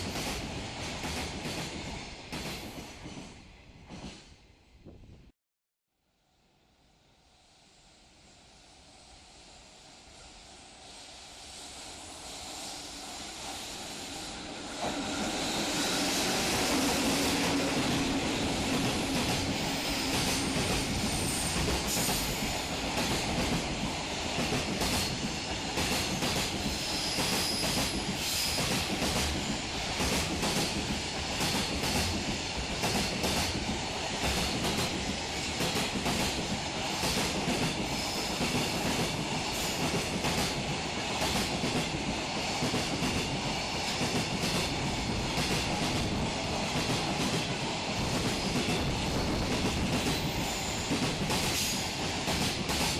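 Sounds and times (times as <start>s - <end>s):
train wheels clicking over rail joints: 14.8s - 52.9s.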